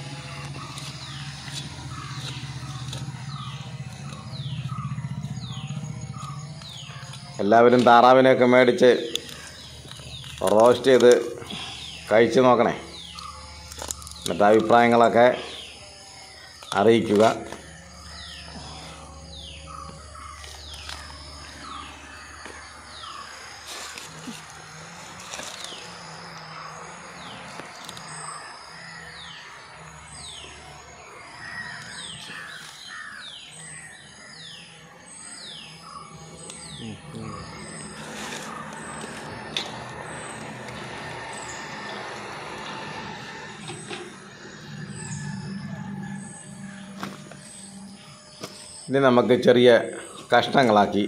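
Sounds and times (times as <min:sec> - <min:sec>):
bird calling high falling notes: 0:30.2 - 0:51.0
low steady hum: 0:33.4 - 0:51.0.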